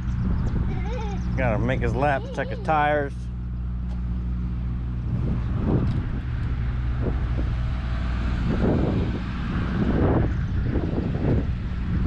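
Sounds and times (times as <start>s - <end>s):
wind on microphone: 0.0s - 2.0s, 5.0s - 12.0s
diesel truck engine idling: 0.7s - 5.1s.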